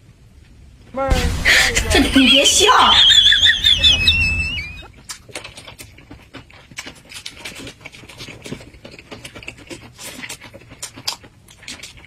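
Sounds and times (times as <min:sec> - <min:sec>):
person chewing crunchy lettuce: 0:04.8 - 0:12.0.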